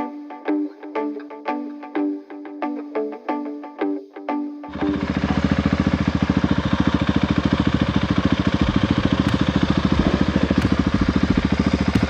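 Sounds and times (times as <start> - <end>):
motorcycle engine running: 4.7 - 12.0.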